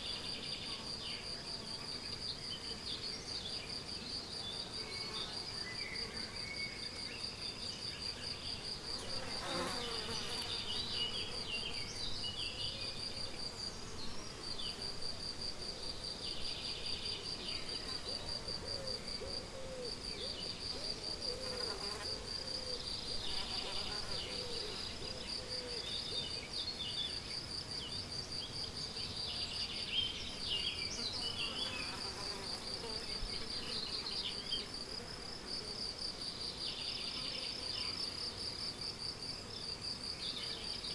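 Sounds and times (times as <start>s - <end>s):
cricket chirping trill: 30.9s - 35.3s.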